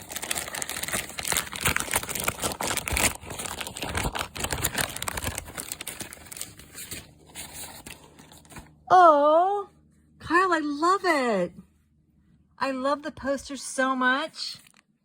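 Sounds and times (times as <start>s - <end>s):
wrapping paper tearing and crumpling: 0.0s - 8.7s, 14.6s - 14.8s.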